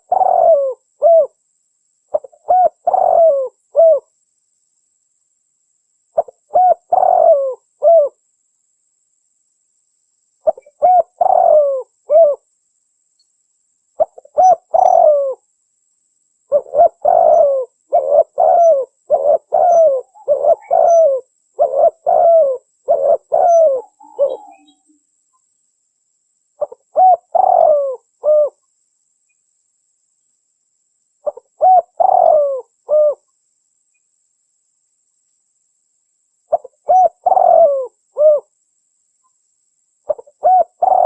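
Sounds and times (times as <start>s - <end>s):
dove cooing: 0.0s - 1.4s, 2.1s - 4.1s, 6.2s - 8.2s, 10.4s - 12.4s, 14.0s - 15.4s, 16.5s - 24.9s, 26.6s - 28.6s, 31.2s - 33.2s, 36.5s - 38.5s, 40.1s - 41.0s.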